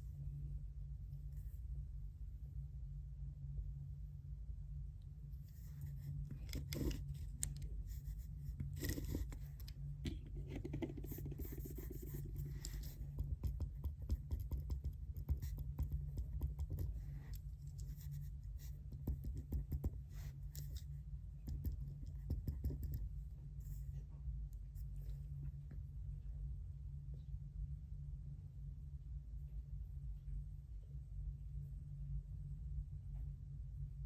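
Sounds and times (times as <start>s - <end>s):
low hum: 0.0s - 34.0s
pen writing on paper: 6.6s - 7.0s, 8.0s - 9.5s, 10.4s - 17.1s.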